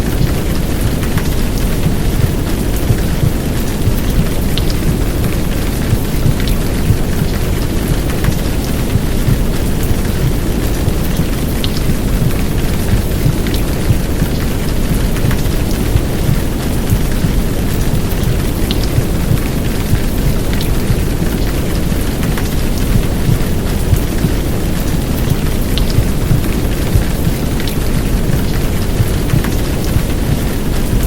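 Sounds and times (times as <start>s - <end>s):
heavy rain downpour: 0.0s - 31.0s.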